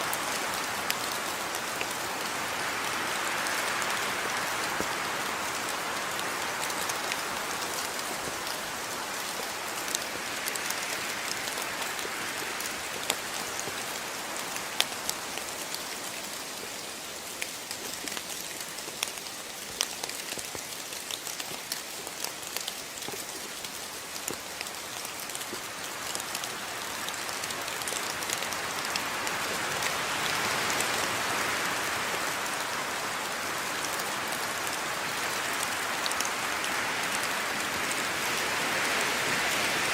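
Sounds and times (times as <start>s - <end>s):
steady rain hiss: 0.0s - 39.9s
raindrops ticking: 3.5s - 31.0s.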